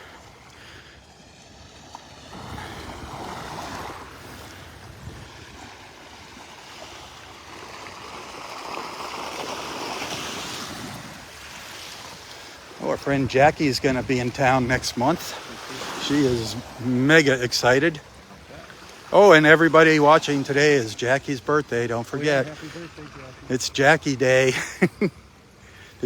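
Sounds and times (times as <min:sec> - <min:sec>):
waves breaking on beach: 0:00.0 - 0:26.0.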